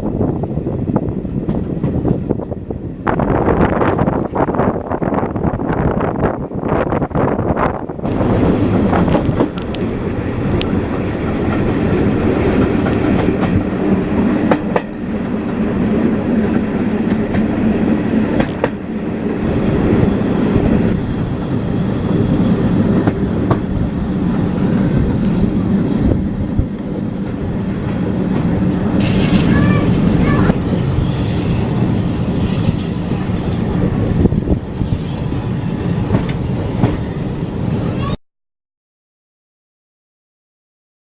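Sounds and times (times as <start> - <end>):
train carriages rumbling: 0.0 - 38.2
wheels clicking over rail joints: 8.1 - 13.7, 26.6 - 30.6.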